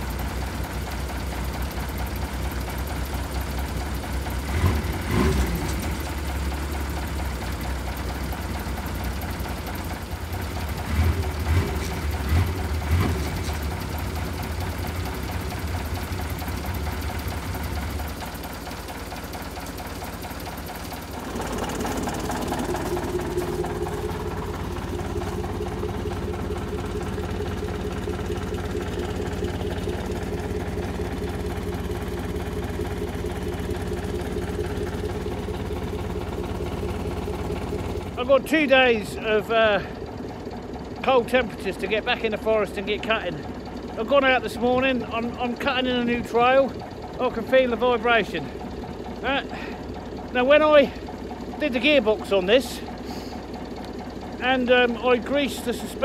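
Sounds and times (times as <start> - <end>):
engine running: 0.0 - 56.0
snowmobile engine: 21.1 - 35.7.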